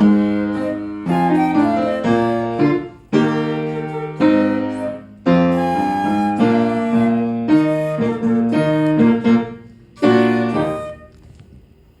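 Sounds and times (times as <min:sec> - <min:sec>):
flute and piano duet: 0:00.0 - 0:11.4.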